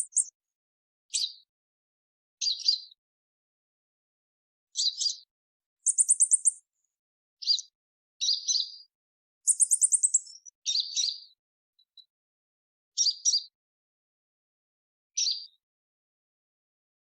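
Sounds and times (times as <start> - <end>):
bird chirping and trilling: 0.0 - 0.4, 2.4 - 2.9, 4.8 - 6.6, 7.4 - 8.9, 9.5 - 11.4, 13.0 - 13.6, 15.2 - 15.6.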